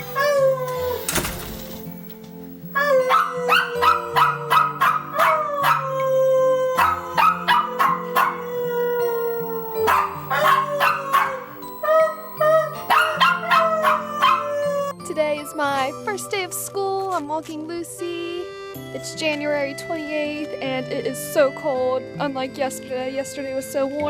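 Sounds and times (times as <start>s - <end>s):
background music: 0.0s - 24.0s
dogs barking and howling: 2.7s - 15.0s.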